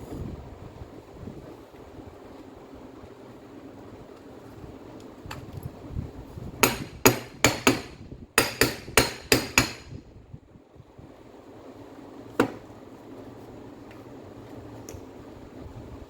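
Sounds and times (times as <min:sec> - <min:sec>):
sharp hammer strikes: 0:06.6 - 0:10.0.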